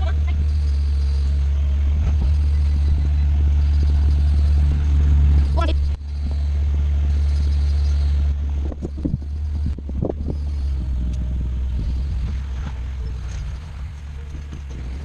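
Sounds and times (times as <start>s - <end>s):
skid steer engine humming: 0.0s - 15.0s.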